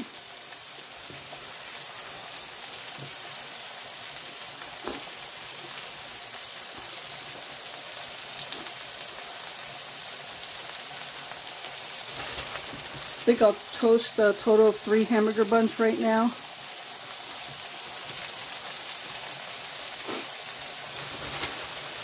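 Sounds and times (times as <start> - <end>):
patties sizzling on a griddle: 0.0 - 22.0.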